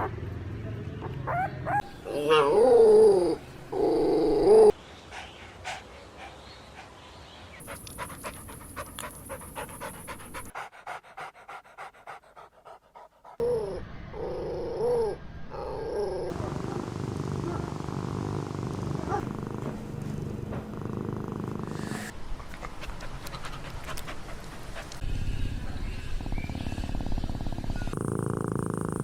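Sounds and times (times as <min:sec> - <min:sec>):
puppy panting: 0:04.7 - 0:13.4, 0:19.0 - 0:25.1
puppy whining: 0:17.4 - 0:19.3.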